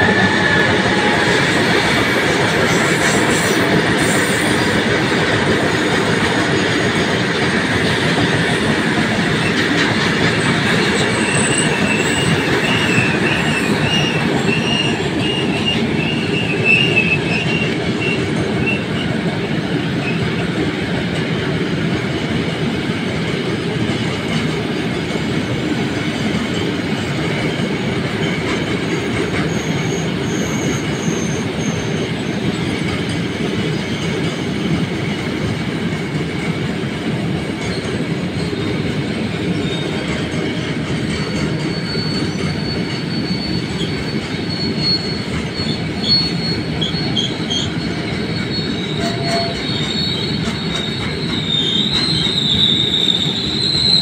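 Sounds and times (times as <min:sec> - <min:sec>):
high wheel squeal: 0:00.0 - 0:04.9, 0:08.0 - 0:20.4, 0:28.2 - 0:32.7, 0:37.6 - 0:54.0
train wheels on rail: 0:00.0 - 0:54.0.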